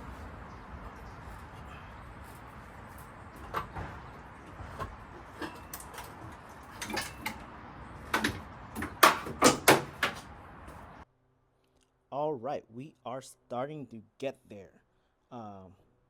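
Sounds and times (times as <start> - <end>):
low background hum: 0.0 - 11.0
tools clinking on engine parts: 1.0 - 11.0.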